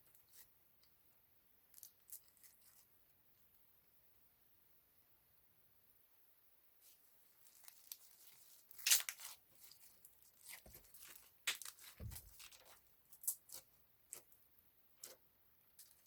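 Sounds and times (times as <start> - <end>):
crinkly material crinkling: 1.7 - 2.9, 6.8 - 14.3.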